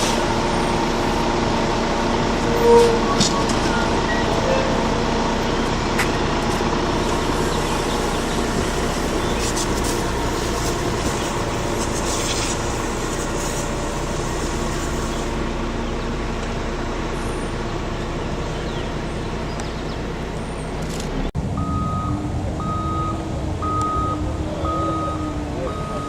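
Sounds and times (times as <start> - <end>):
truck backup alarm beeping: 0.0 - 13.0, 21.4 - 26.0
heavy truck engine running: 0.0 - 26.0.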